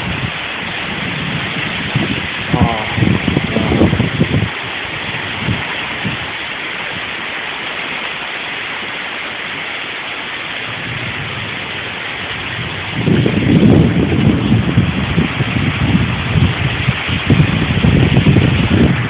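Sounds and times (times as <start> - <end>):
low rumble: 0.0 - 6.3, 10.7 - 19.0
heavy rain pouring: 0.0 - 19.0.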